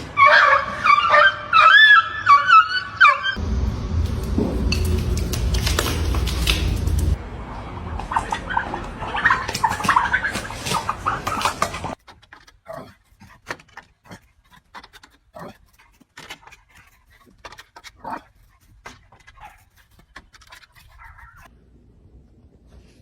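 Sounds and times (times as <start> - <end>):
dog panting: 9.2 - 21.5.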